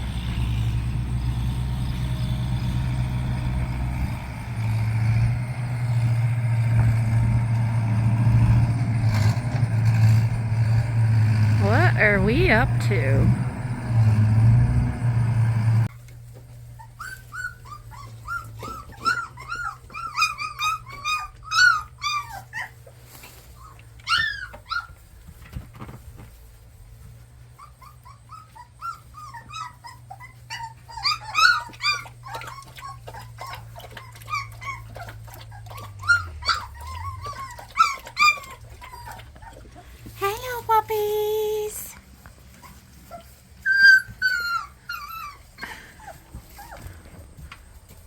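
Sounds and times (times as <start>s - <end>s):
puppies whimpering and squealing: 11.6s - 13.3s, 15.8s - 25.1s, 27.4s - 47.4s.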